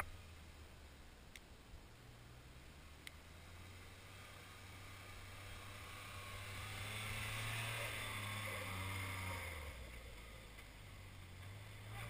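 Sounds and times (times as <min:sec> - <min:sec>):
tyres churning through snow: 0:02.2 - 0:12.0
small engine pulling under load: 0:03.2 - 0:12.0.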